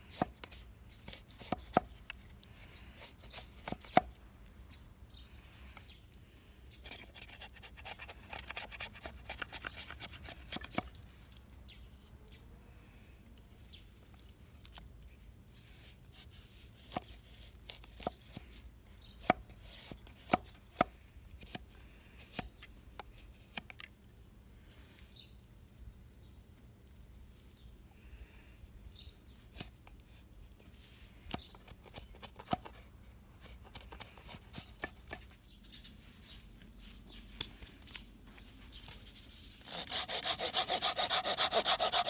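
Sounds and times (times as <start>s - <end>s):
scraping or sawing wood: 6.9s - 10.9s, 39.6s - 42.0s.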